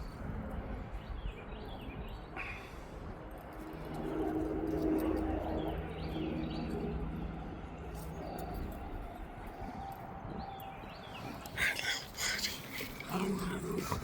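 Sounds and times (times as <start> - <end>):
birds chirping: 10.3 - 14.0.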